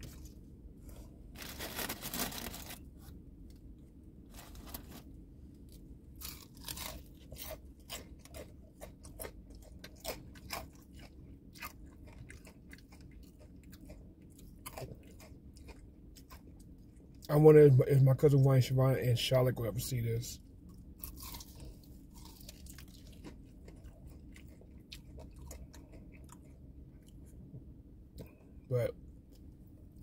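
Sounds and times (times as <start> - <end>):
steady low hum: 0.0 - 30.0
crunchy chewing: 4.3 - 17.3, 20.6 - 28.5.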